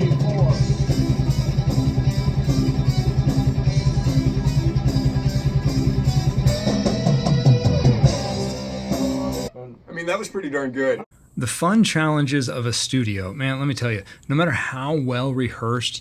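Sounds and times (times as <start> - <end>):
distorted electric guitar riff: 0.0 - 9.5
guitar line with bending notes: 0.0 - 9.5.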